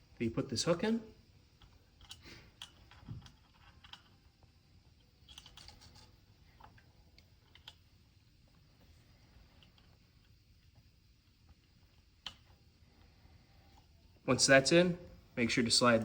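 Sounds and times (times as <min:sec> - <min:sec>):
small metal parts clicking: 0:01.6 - 0:04.4, 0:05.0 - 0:07.9.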